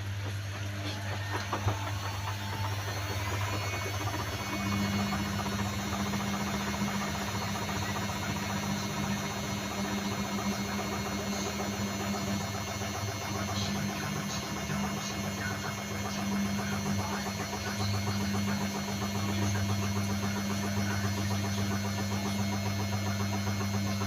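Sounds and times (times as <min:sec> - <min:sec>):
washing machine humming: 0:00.0 - 0:24.0.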